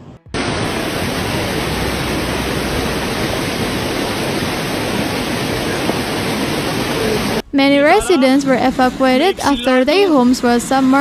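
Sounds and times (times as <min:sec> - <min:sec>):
floodwater rushing: 0:00.4 - 0:07.5.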